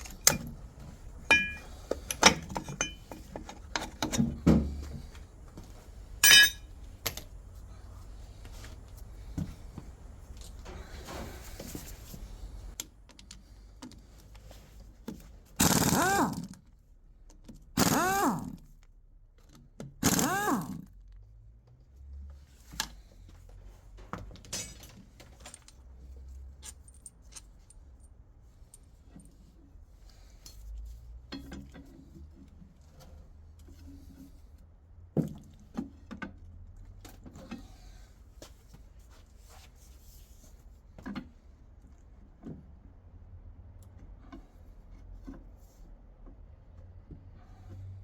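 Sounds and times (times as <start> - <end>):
metal parts clinking and knocking: 0.0 - 4.9, 6.2 - 7.3, 24.3 - 25.9, 26.5 - 28.1.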